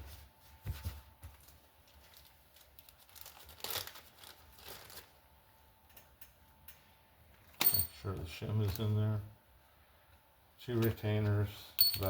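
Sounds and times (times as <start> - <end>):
plastic bag crinkling: 1.4 - 5.2.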